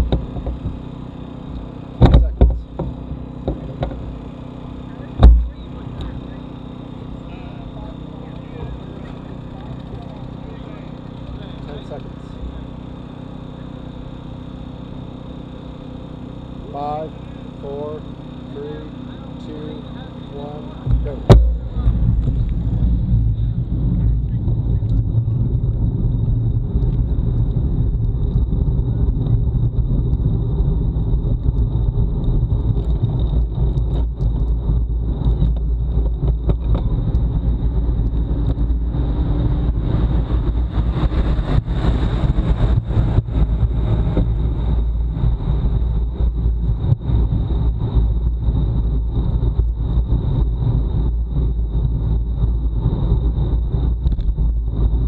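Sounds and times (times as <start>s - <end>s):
thin high whine: 0.0s - 29.8s
wind buffeting microphone: 20.9s - 55.0s.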